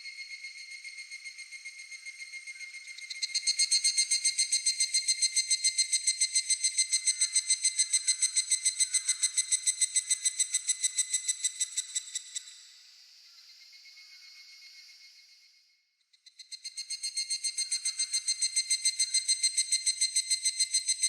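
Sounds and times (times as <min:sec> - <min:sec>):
cicada calling: 0:00.2 - 0:12.5.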